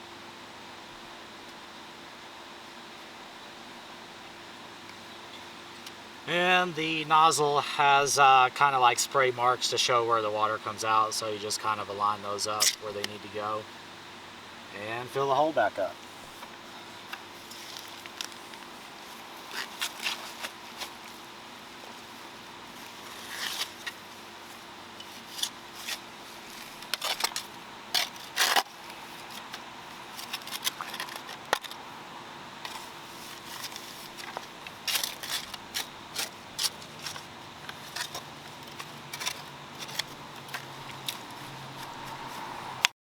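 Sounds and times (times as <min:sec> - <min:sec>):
soil scraping and crunching: 0:14.8 - 0:31.9, 0:32.6 - 0:42.6.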